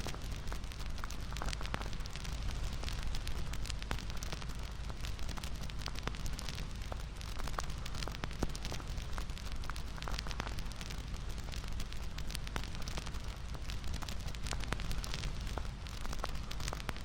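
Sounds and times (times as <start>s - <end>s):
bonfire crackling: 0.0s - 17.0s.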